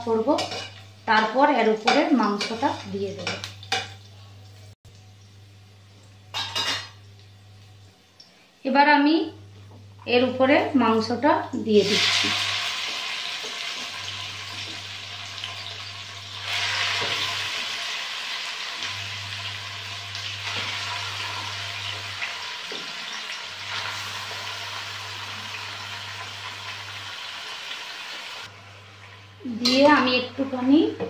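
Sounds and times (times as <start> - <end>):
chicken sizzling in hot oil: 11.8 - 30.0.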